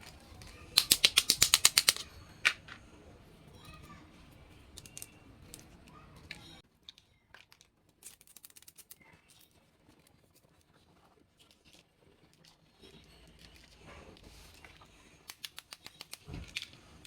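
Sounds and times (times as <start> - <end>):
toy pieces clicking and rustling: 0.0 - 2.8, 4.7 - 9.6, 15.2 - 17.0.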